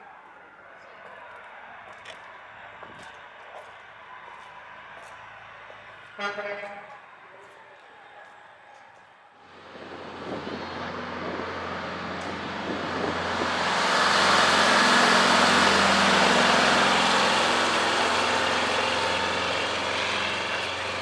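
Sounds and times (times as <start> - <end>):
diesel truck engine passing: 9.5 - 21.0.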